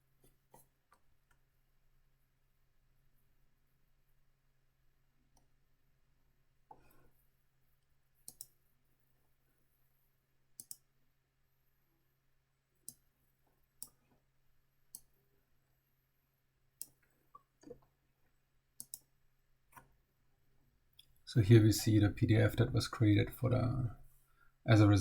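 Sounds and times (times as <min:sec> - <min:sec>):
computer mouse clicks: 0:08.2 - 0:08.6, 0:10.6 - 0:10.9, 0:12.8 - 0:13.1, 0:14.9 - 0:15.1, 0:16.8 - 0:17.8, 0:18.8 - 0:19.1.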